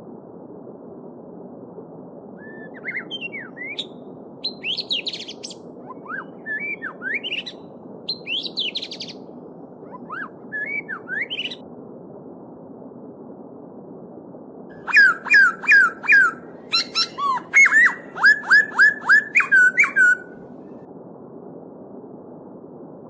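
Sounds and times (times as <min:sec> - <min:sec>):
songbird singing: 0:02.4 - 0:09.2, 0:09.9 - 0:11.6, 0:14.8 - 0:20.4.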